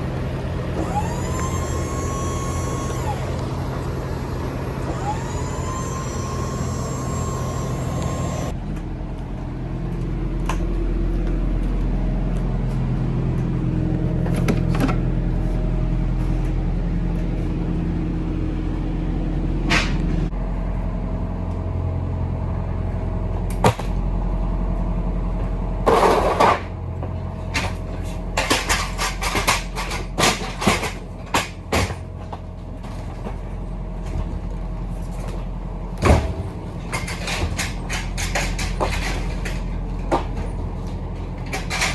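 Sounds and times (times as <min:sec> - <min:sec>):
truck engine running: 0:00.0 - 0:41.9
clunks and rattles: 0:00.7 - 0:09.3, 0:09.9 - 0:15.2, 0:24.8 - 0:41.9.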